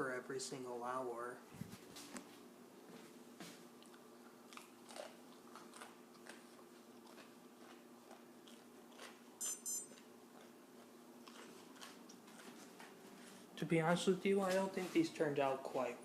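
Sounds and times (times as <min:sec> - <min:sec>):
steady low hum: 0:00.0 - 0:16.0
soft chewing and mouth clicks: 0:03.4 - 0:09.3, 0:09.9 - 0:13.5
high-pitched electronic beeps: 0:09.4 - 0:09.9.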